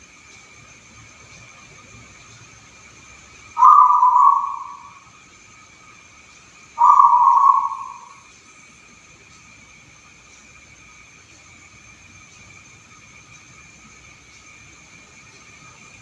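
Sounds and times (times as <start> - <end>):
faint high-pitched hum: 0.0 - 16.0
dove cooing: 3.6 - 5.0, 6.8 - 8.2.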